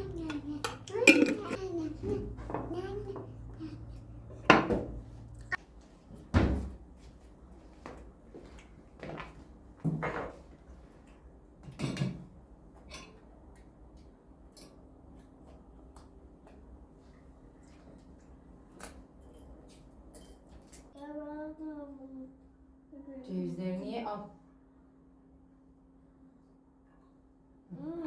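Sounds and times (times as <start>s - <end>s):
plates and cutlery clattering: 0.1s - 2.7s.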